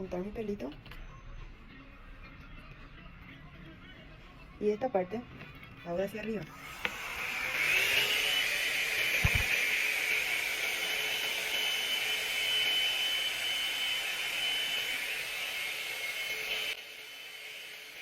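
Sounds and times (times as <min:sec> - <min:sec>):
hot-air brush dryer fan whine: 0:06.4 - 0:18.0.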